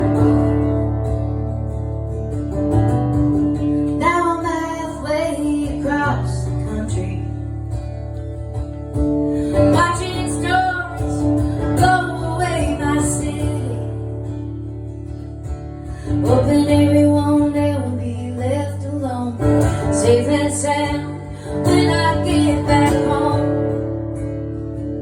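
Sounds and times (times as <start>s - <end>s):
acoustic guitar playing: 0.0s - 25.0s
woman singing: 3.6s - 8.0s, 9.4s - 15.2s, 15.8s - 24.9s.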